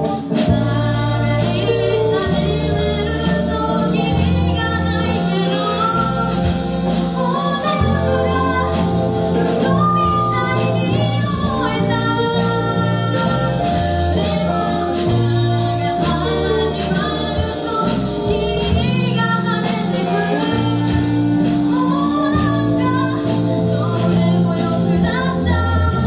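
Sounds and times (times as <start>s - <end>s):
bass guitar: 0.0s - 26.0s
drums: 0.0s - 26.0s
electric guitar: 0.0s - 26.0s
person singing: 0.0s - 26.0s.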